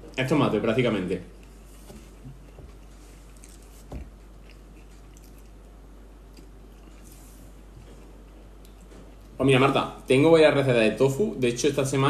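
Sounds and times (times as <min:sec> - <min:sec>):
chewing with mouth closed: 0:02.3 - 0:05.7.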